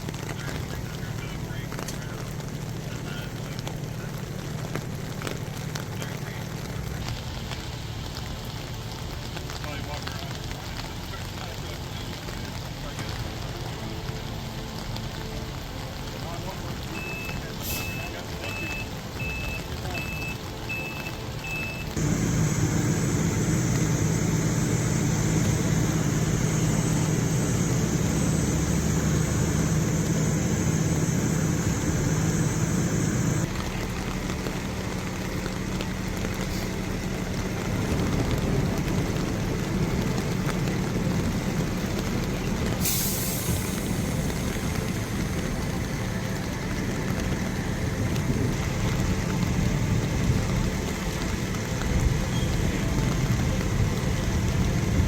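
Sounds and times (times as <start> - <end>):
heavy vehicle engines running: 0.0 - 55.0
reversing alarm beeping: 17.0 - 33.5.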